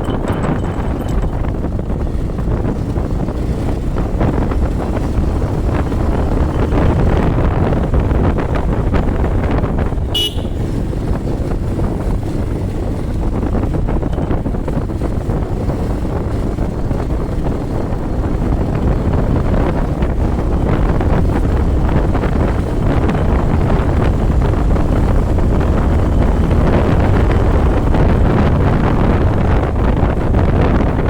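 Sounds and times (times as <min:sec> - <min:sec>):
motorcycle running: 0:00.0 - 0:31.0
wind buffeting microphone: 0:00.0 - 0:31.0
vehicle horn beep: 0:10.1 - 0:10.8.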